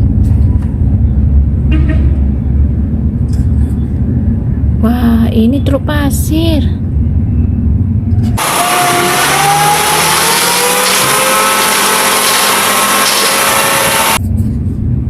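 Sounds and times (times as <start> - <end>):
vehicle engine revving: 8.2 - 14.2.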